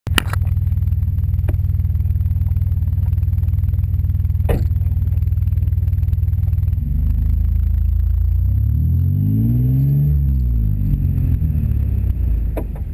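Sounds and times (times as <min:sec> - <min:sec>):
car engine idling: 0:00.1 - 0:12.9.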